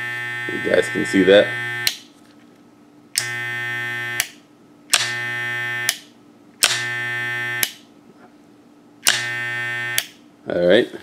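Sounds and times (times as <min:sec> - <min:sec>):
hair clipper motor buzzing: 0:00.0 - 0:02.0, 0:03.2 - 0:07.8, 0:09.0 - 0:10.2.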